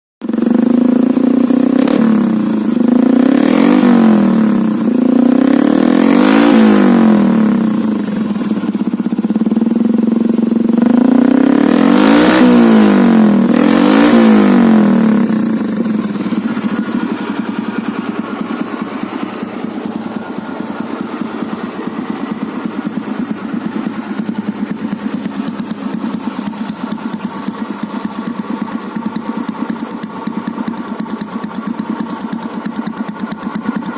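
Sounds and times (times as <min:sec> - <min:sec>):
motorcycle engine revving and idling: 0:00.2 - 0:33.9.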